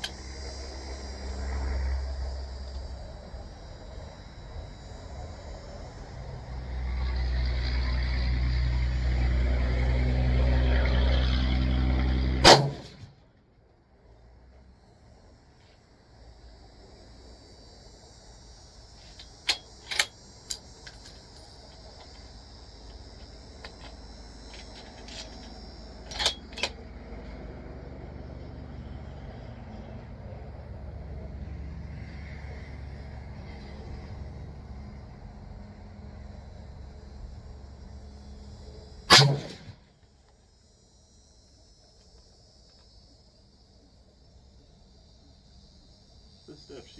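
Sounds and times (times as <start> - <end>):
faint metallic ringing: 19.5 - 22.1
metallic clicks and clinks: 19.5 - 22.1.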